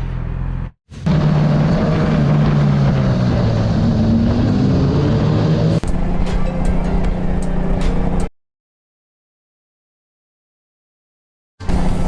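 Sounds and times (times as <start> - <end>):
motorcycle engine drone: 0.0 - 8.3.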